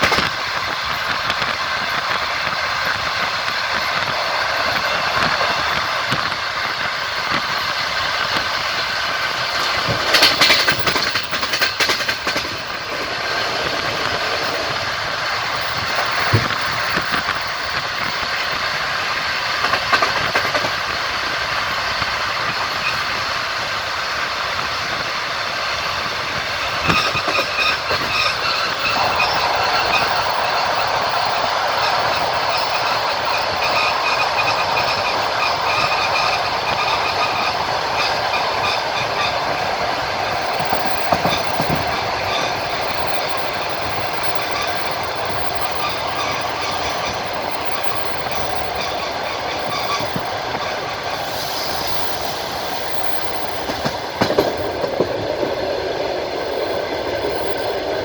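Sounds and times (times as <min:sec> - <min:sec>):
wheels clattering over rail joints: 0:00.0 - 0:23.2, 0:25.7 - 0:55.8
train wheels rumbling on rails: 0:00.0 - 0:58.0
high wheel squealing: 0:26.6 - 0:39.6.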